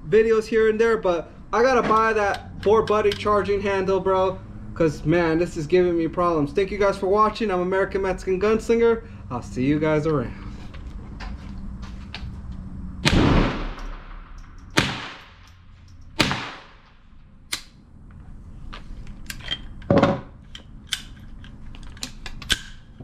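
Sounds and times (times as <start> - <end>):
rifle handling clicks: 1.9 - 3.3, 17.5 - 17.8, 20.5 - 23.0
gunshots with echo: 13.0 - 15.4, 16.2 - 16.8.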